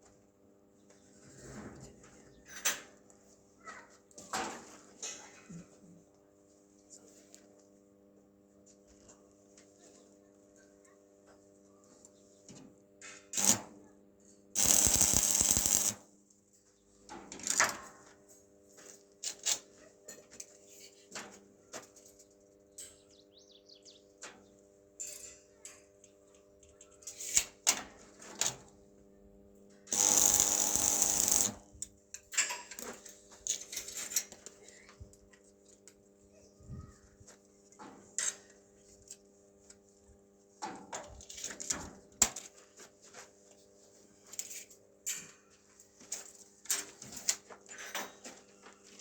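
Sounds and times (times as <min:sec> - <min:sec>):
power tool bursts: 0:13.4 - 0:13.6, 0:14.6 - 0:16.0, 0:29.9 - 0:31.6
metal parts clicking and knocking: 0:14.6 - 0:15.9
steady hum: 0:14.6 - 0:16.0.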